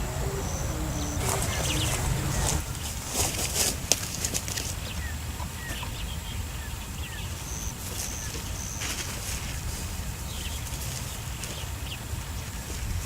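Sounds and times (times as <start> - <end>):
birds chirping: 0.0 - 2.6.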